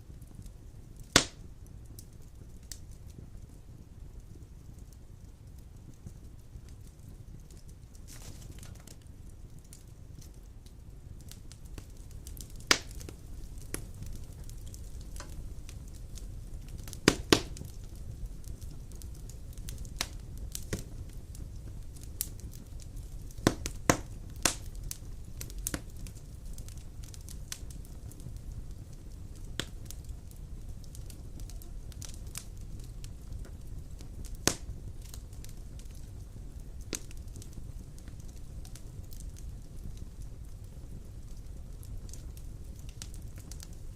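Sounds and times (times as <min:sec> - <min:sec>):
wood fire crackling and popping: 0:00.0 - 0:43.9.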